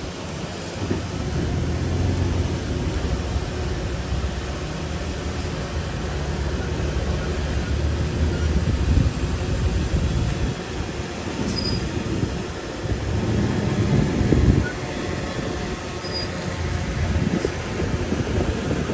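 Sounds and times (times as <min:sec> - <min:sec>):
bulldozer engine rumble: 0:00.0 - 0:18.9
high squeal: 0:11.4 - 0:12.0, 0:13.4 - 0:17.5.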